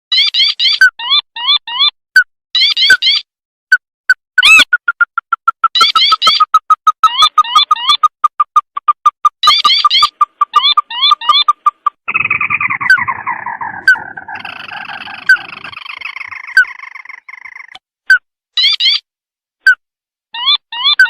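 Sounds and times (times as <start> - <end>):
chattering trill: 4.4 - 17.8.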